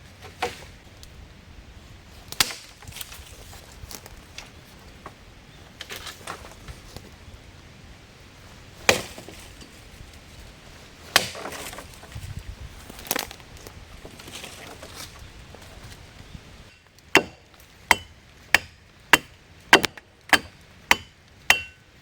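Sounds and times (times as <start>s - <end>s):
wood being chopped: 2.3s - 2.8s, 8.9s - 9.4s, 11.1s - 11.8s, 16.7s - 21.8s.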